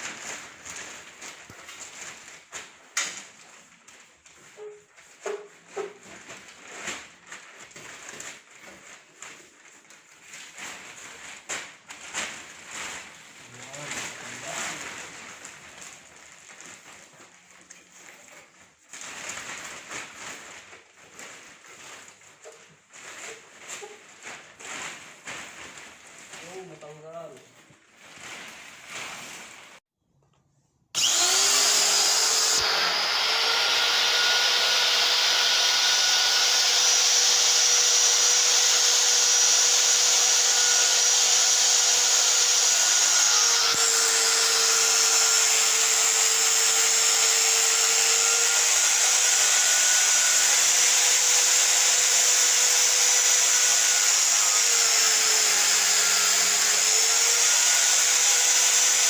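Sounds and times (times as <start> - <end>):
high-speed electric motor whining: 31.0 - 59.0.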